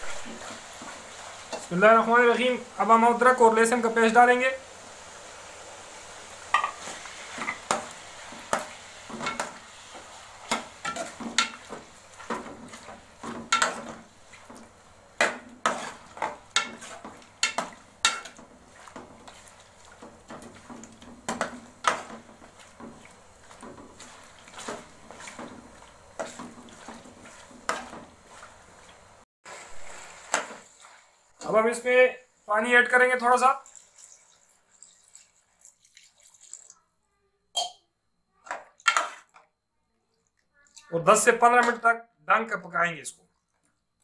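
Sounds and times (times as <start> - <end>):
faint sizzle: 0.0 - 44.0
spoon scraping a pan: 0.1 - 1.8, 6.4 - 29.0, 38.4 - 39.5.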